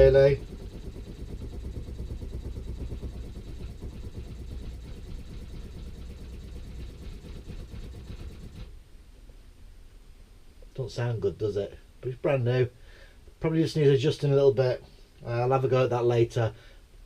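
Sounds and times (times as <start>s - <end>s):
water pump pulsing rattle: 0.0s - 8.8s.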